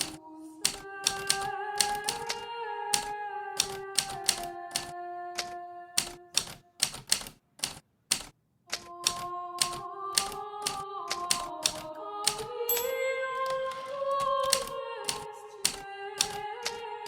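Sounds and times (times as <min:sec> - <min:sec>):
manual typewriter keystrokes: 0:00.0 - 0:12.8, 0:13.4 - 0:16.8.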